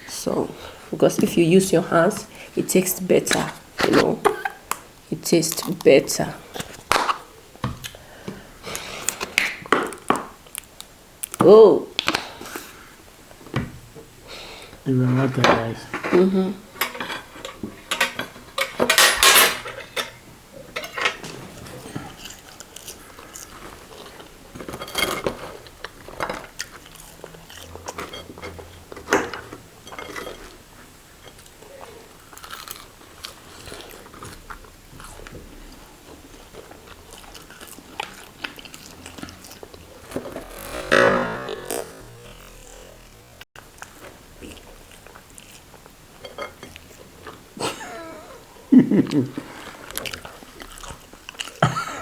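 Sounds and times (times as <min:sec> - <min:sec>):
plates and cutlery clicking: 0:16.8 - 0:20.2
chewing and biting food: 0:21.7 - 0:28.2, 0:31.4 - 0:40.5, 0:43.7 - 0:47.4, 0:49.4 - 0:51.8.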